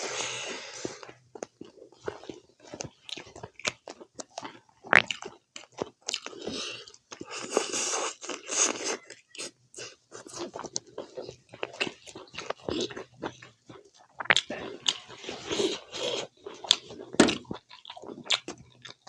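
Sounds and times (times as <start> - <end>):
breathy hiss: 0.0 - 1.1
wet chewing: 0.9 - 19.0
mouth clicks and crunches: 1.4 - 19.0.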